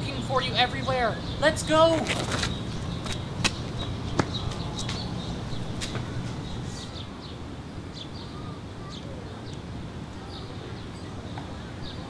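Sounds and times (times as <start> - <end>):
city background rumble: 0.0 - 12.0
small birds chirping: 0.0 - 12.0.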